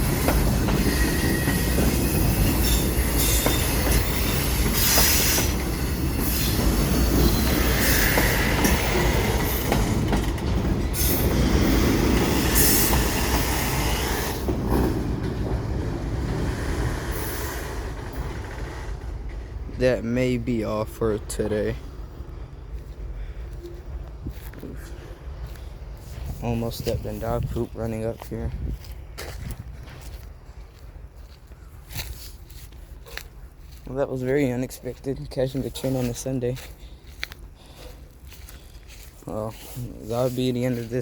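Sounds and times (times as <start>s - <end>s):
wheel squeal: 0.0s - 9.3s
train knocks: 0.0s - 21.6s
train wheels on rails: 0.0s - 41.0s.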